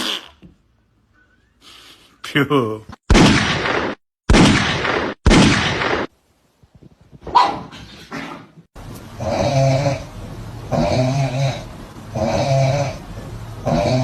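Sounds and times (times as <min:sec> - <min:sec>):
dog barking: 0:07.3 - 0:07.8.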